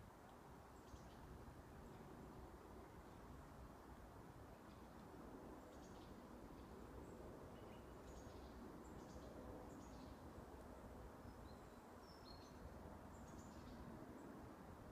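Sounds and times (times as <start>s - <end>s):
low background hiss: 0.0s - 14.9s
songbirds chirping: 11.2s - 14.4s.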